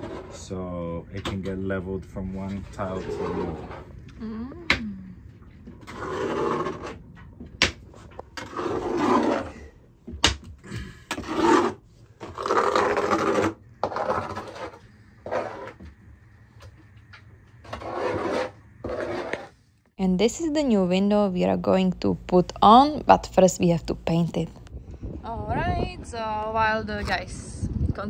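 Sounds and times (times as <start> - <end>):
hand scraping strokes: 2.2 - 3.9, 7.9 - 9.8, 11.1 - 15.9, 17.6 - 19.6.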